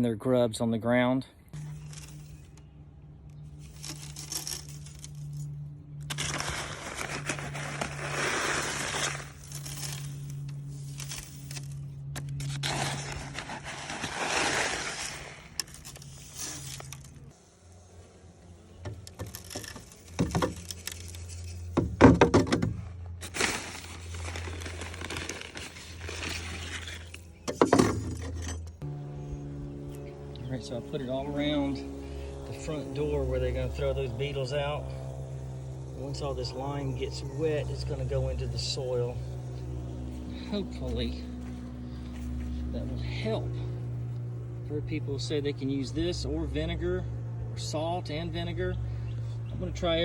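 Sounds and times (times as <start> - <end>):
bag crinkling and scraping: 1.6 - 2.8, 3.4 - 17.4, 19.0 - 28.8
powder pouring onto ground: 23.2 - 26.8.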